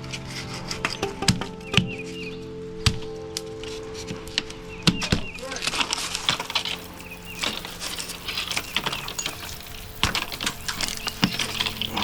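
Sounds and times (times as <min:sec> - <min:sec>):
hand demolition clicking and scraping: 0:06.2 - 0:12.0.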